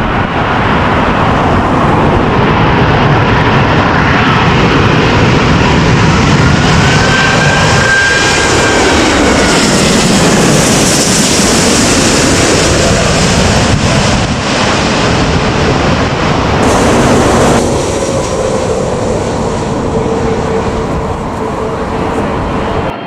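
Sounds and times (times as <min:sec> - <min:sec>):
jet airliner passing overhead: 0:00.0 - 0:23.0
jet engine whine: 0:00.0 - 0:23.0
high hiss: 0:16.6 - 0:20.6.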